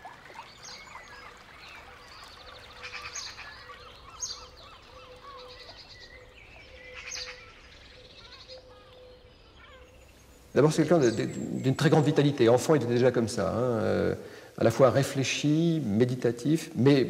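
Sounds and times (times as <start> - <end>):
small birds twittering: 0.0 - 16.0
bird trills: 0.2 - 12.0.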